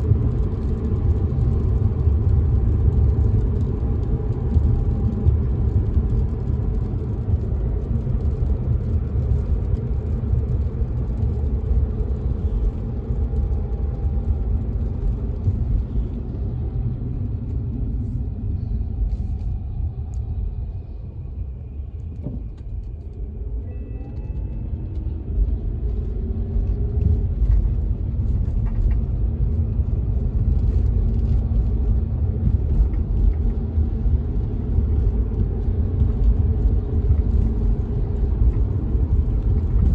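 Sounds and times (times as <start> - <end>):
road and tyre rumble: 0.0 - 39.9
rain tapping on car: 0.1 - 17.5, 25.4 - 39.9.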